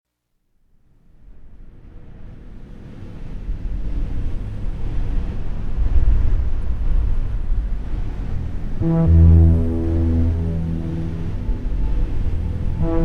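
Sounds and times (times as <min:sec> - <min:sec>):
deep noisy ambient swell: 0:08.0 - 0:13.0.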